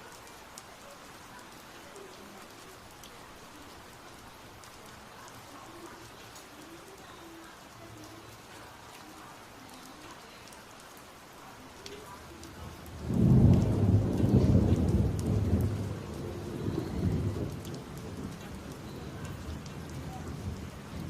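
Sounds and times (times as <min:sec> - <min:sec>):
steady rain falling: 0:00.0 - 0:21.0
thunderclap rumbling: 0:12.7 - 0:21.0.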